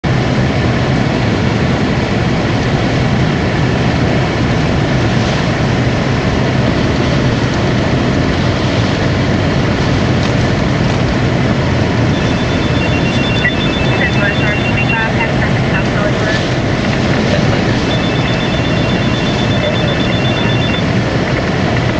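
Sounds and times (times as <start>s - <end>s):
car engine rumble: 0.0s - 21.9s
road noise: 0.0s - 21.9s
short high-pitched electronic beeps: 12.1s - 16.4s, 17.3s - 20.9s.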